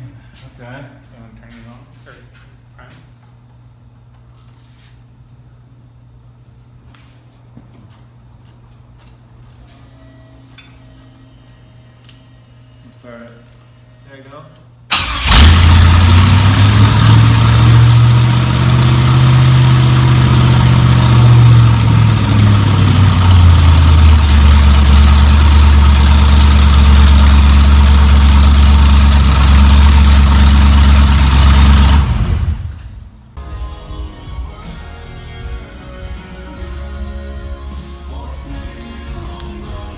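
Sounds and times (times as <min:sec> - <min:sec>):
car engine idling: 0:14.9 - 0:33.3.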